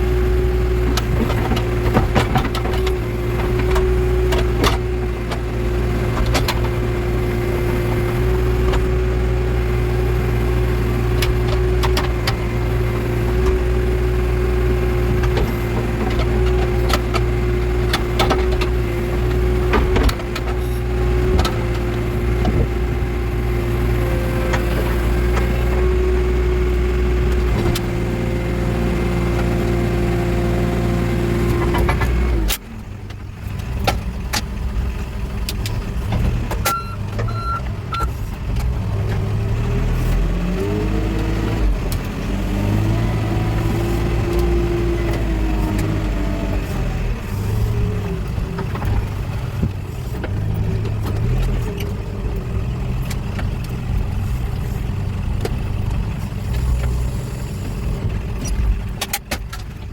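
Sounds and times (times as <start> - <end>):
diesel engine running under load: 0.0 - 59.9
short beeps: 36.7 - 38.1.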